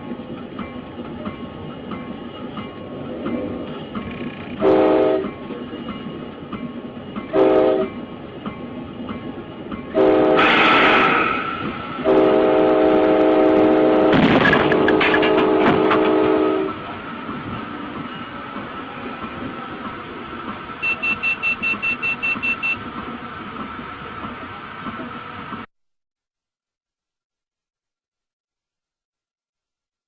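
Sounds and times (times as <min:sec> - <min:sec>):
moving train rumble: 0:00.0 - 0:25.7
train horn blasts: 0:04.6 - 0:05.4, 0:07.3 - 0:08.0, 0:09.9 - 0:11.0, 0:12.0 - 0:16.8.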